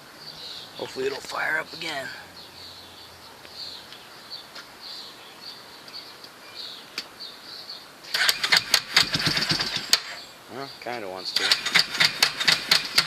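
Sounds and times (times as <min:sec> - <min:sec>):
small birds chirping: 0:00.0 - 0:08.5, 0:09.2 - 0:11.6
engine cranking without starting: 0:08.1 - 0:10.2, 0:11.4 - 0:13.0.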